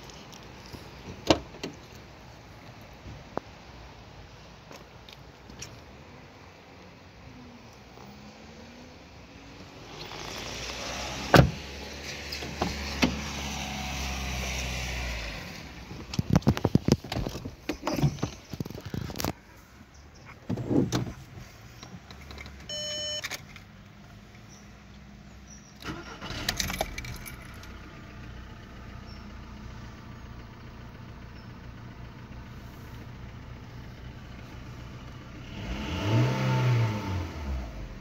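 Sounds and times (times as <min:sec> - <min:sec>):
car engine starting and idling: 0:00.0 - 0:38.0
engine revving: 0:08.1 - 0:15.8, 0:34.6 - 0:38.0
short electronic beep: 0:22.7 - 0:23.3.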